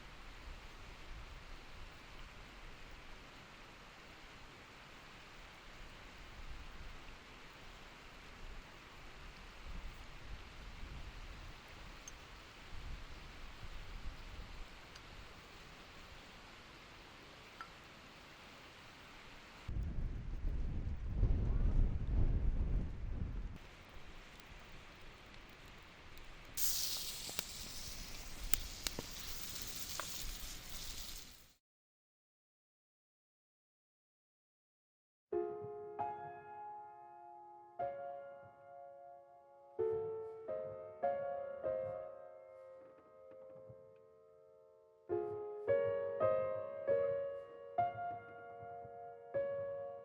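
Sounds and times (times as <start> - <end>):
campfire crackling: 0.0 - 31.6
low rumble: 19.7 - 23.6
fire pops: 19.7 - 31.6.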